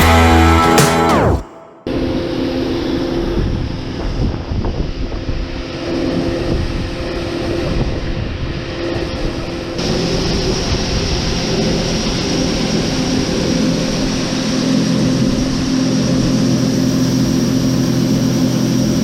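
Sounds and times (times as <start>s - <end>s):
harvest machinery engine running: 9.8s - 19.0s.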